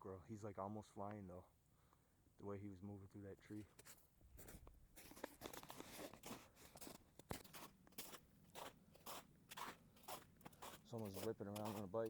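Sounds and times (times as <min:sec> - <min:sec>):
footsteps crunching through snow: 0:03.7 - 0:12.0.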